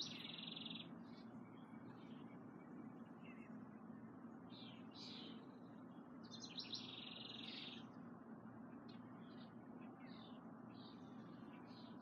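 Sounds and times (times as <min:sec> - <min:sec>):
bird trill: 0:00.0 - 0:03.6
songbirds chirping: 0:00.0 - 0:12.0.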